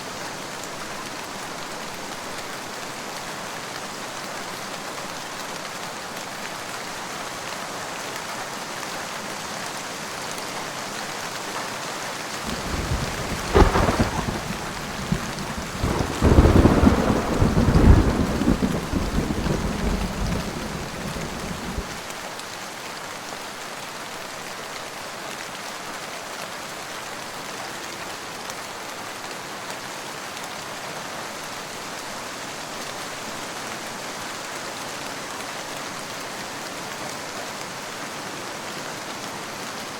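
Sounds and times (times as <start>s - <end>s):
rain falling: 0.1s - 39.9s
thunder crack and rumble: 12.5s - 22.0s.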